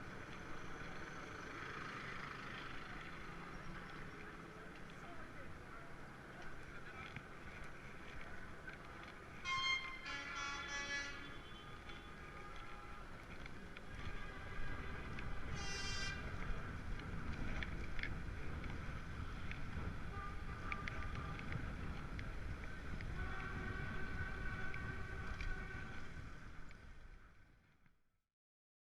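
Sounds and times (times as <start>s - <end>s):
street traffic: 0.0s - 28.0s
wind rumble on microphone: 11.7s - 27.8s.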